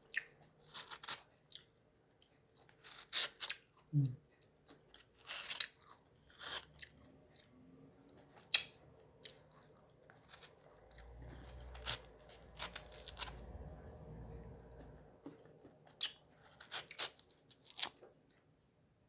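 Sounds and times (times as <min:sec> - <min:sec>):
faint low hum: 0:05.7 - 0:19.0.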